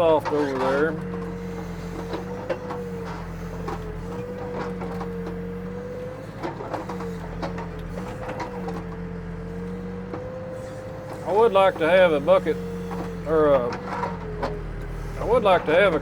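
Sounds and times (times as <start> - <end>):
diesel engine running: 0.0 - 16.0
hydraulic whine: 0.0 - 16.0.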